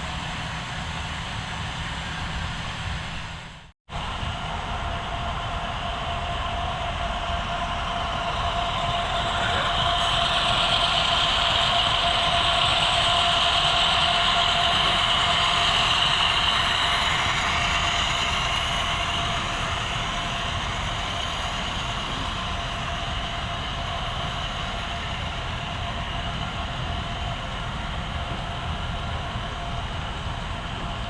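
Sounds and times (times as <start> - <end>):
model train wheels and motor whirring: 0.0 - 31.0.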